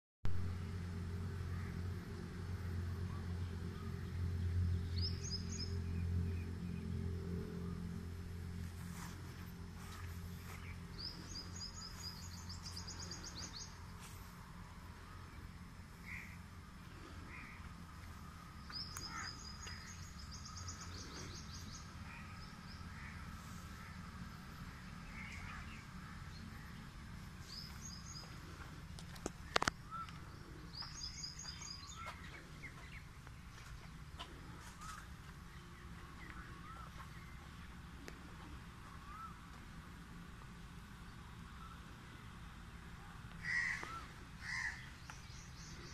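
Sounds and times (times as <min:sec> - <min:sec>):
steady low rumble: 0:00.3 - 0:45.9
birds chattering: 0:15.0 - 0:39.5, 0:43.3 - 0:45.9
bird chirps: 0:18.6 - 0:22.9.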